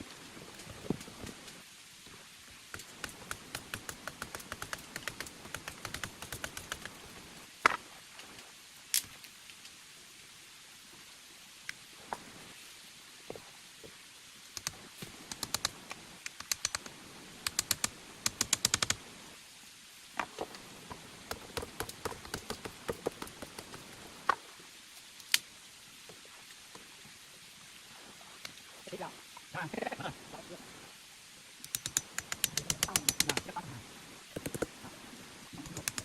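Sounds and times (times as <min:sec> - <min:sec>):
light sharp taps and clicks: 0:31.7 - 0:33.5.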